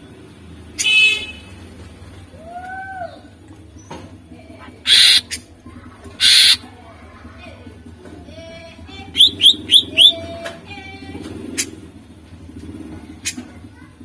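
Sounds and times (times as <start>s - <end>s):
harsh rasping bird calls: 4.6s - 5.6s, 6.2s - 6.8s, 9.0s - 10.3s
bird singing whistled notes: 4.9s - 5.3s, 9.1s - 10.3s.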